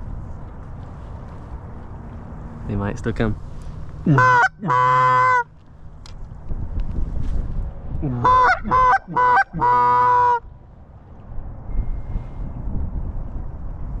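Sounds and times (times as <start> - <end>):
wind rumble: 0.0 - 14.0
goose call honks: 4.1 - 5.5, 8.1 - 10.4.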